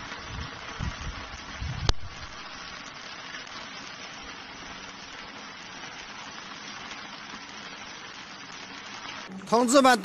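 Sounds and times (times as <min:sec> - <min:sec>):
rain hissing on roofs and water: 0:00.0 - 0:10.0.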